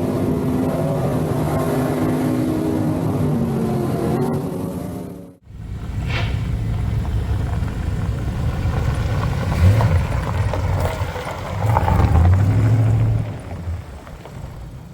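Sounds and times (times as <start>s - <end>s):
truck engine rumbling: 0.0s - 14.9s.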